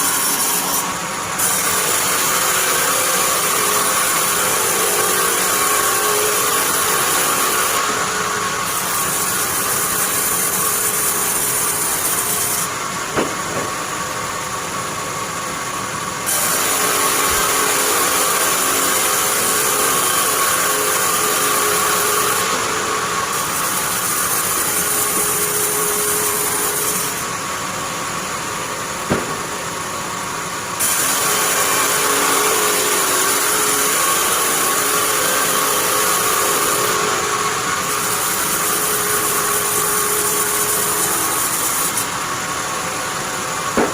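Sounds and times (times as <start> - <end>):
bandsaw cutting wood: 0.0 - 14.0, 16.2 - 27.8, 30.7 - 43.9
sharp knock: 13.1 - 13.8, 29.1 - 29.6.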